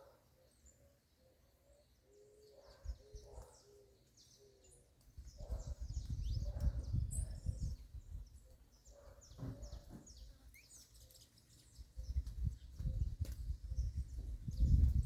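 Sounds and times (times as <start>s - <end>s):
small birds chirping: 0.0s - 15.0s
low rumbling noise in gusts: 5.4s - 8.4s, 12.0s - 15.0s.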